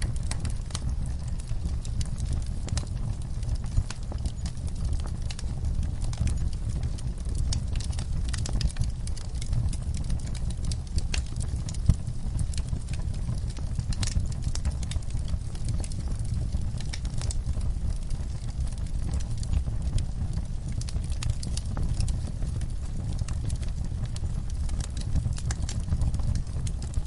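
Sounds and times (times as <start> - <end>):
fire popping and snapping: 0.0 - 27.0
wood fire crackling: 0.0 - 27.0.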